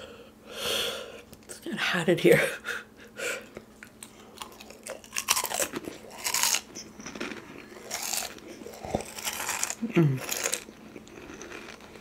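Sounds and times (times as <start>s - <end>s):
fried chicken crust crunching: 4.4s - 12.0s.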